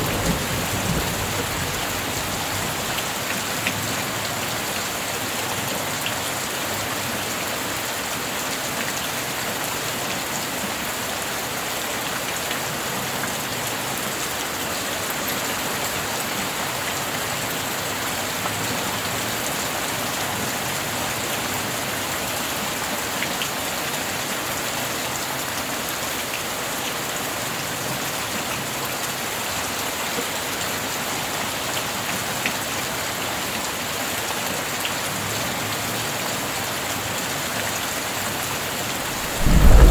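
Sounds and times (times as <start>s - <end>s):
steady rain falling: 0.0s - 22.4s, 36.0s - 39.9s.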